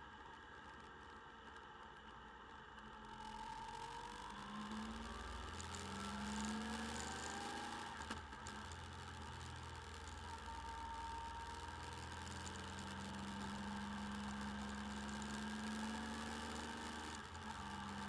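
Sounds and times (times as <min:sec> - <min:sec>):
motorcycle engine revving: 0:04.0 - 0:10.7, 0:11.5 - 0:18.0.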